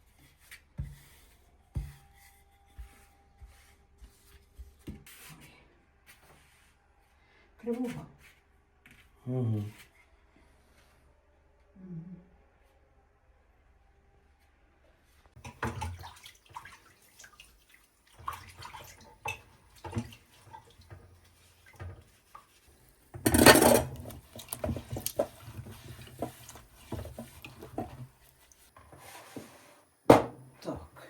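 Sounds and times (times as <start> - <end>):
dishes and pots clattering: 15.4 - 16.1, 19.2 - 21.1, 23.1 - 28.1, 30.1 - 30.4.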